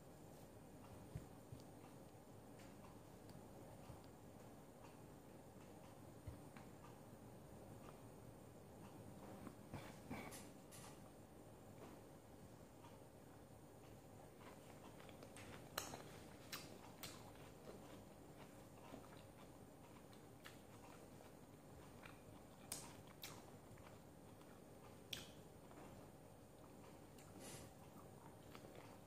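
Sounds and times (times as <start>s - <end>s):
chewing and mouth sounds: 14.2s - 29.0s.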